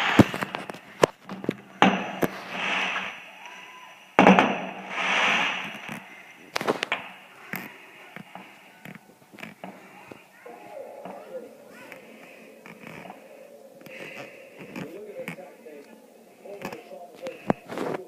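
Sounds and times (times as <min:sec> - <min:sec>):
small firework cracks: 0:00.0 - 0:10.2
fireworks banging: 0:00.0 - 0:18.0
fireworks hissing crackle: 0:00.0 - 0:18.0.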